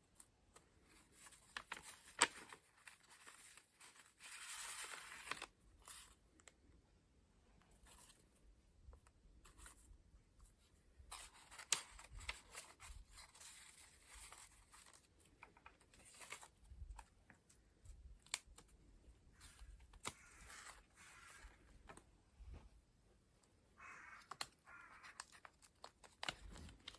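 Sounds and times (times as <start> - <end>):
pages turning: 0.1 - 6.6, 11.0 - 17.6, 18.2 - 22.0, 24.0 - 26.9.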